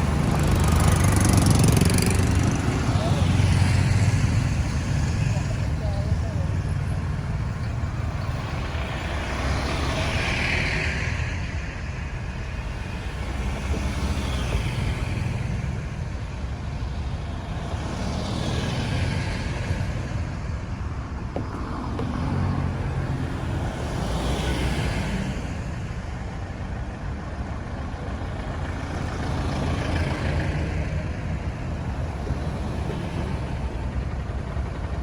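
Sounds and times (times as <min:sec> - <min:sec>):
road traffic rumble: 0:00.0 - 0:35.0
vehicles passing: 0:00.0 - 0:35.0.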